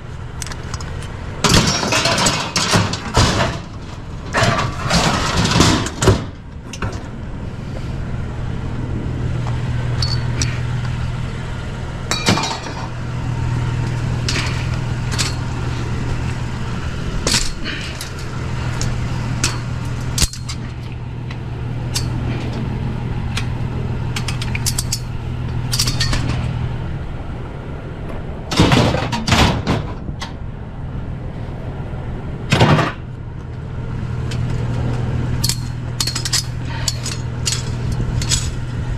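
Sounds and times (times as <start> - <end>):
vehicle engine running: 0.0 - 38.9
hard objects clinking: 10.0 - 10.6.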